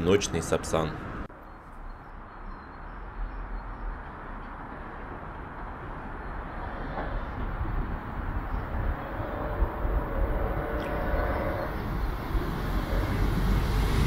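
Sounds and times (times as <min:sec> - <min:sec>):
train rushing rumble: 0:04.6 - 0:14.0.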